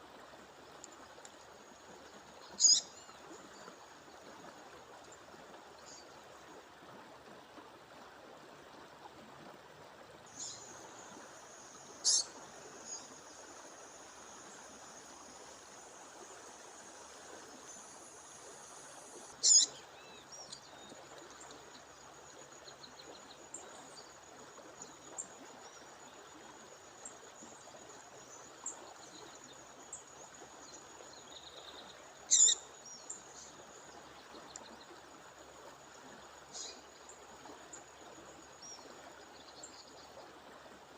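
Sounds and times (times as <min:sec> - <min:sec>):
bird sharp high calls: 0:02.6 - 0:02.9, 0:12.0 - 0:12.3, 0:19.4 - 0:19.7, 0:32.3 - 0:32.6.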